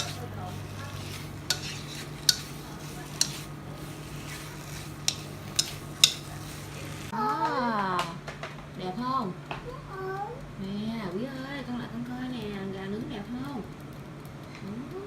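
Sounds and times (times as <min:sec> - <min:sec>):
metal utensil clinking cookware: 0:00.0 - 0:07.1.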